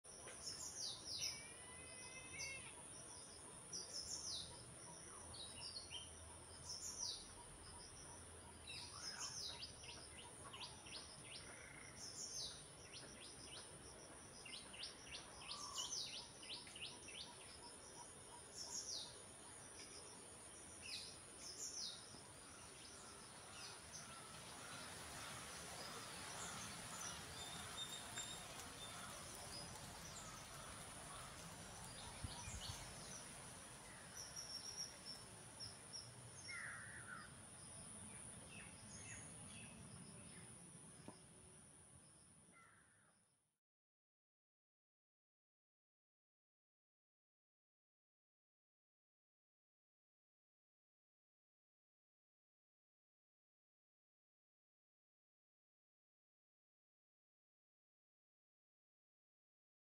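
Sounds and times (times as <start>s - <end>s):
small birds chirping: 0.1s - 41.3s
soft hiss: 19.8s - 40.3s.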